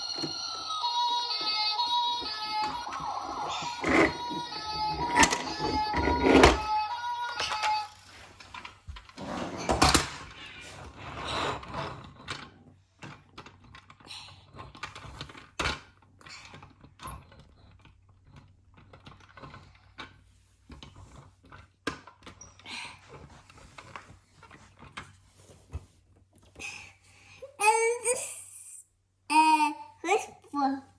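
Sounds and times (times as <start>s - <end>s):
plastic toys clicking and rattling: 2.2s - 9.1s, 12.0s - 22.6s.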